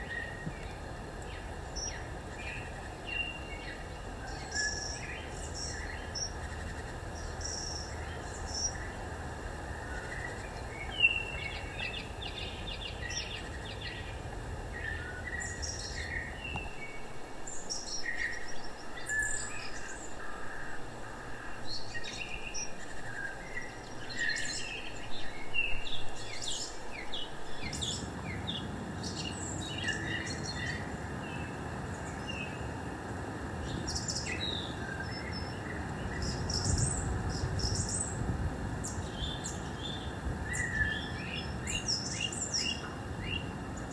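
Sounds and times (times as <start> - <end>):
low outdoor rumble: 0.0 - 16.9, 27.5 - 43.9
songbirds chirping: 0.0 - 16.9, 27.1 - 43.9.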